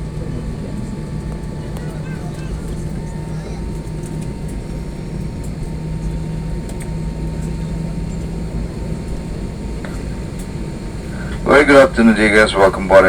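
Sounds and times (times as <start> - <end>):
ventilation airflow hum: 0.0 - 13.0
faint clicks: 6.6 - 7.6.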